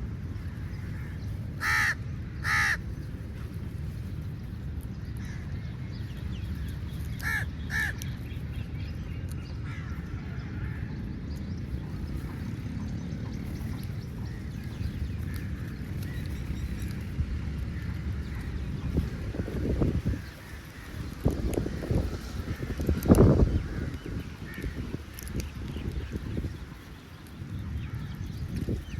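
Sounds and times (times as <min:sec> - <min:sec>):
steady low rumble: 0:00.0 - 0:28.9
crows cawing: 0:00.9 - 0:02.8, 0:07.2 - 0:08.0.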